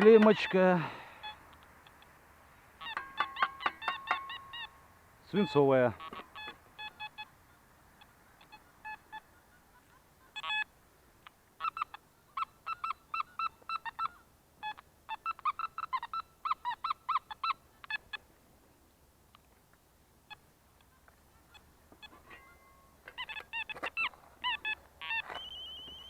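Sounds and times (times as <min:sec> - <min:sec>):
metal detector beeping: 0:22.0 - 0:26.0.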